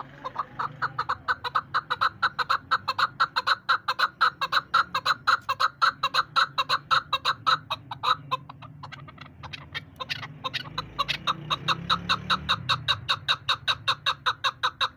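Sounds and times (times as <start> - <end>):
partridge clucking calls: 0.0 - 14.9.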